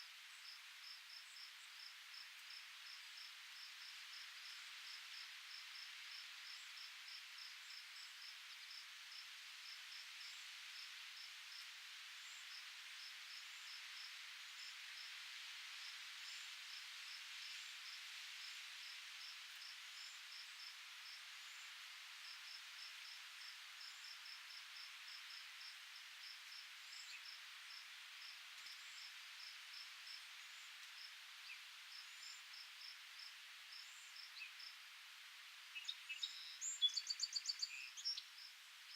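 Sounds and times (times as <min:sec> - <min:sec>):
wind rustling foliage: 0:00.0 - 0:38.9
cricket chirping: 0:15.8 - 0:21.6, 0:22.2 - 0:34.9
faint high bird chirps: 0:35.8 - 0:38.3.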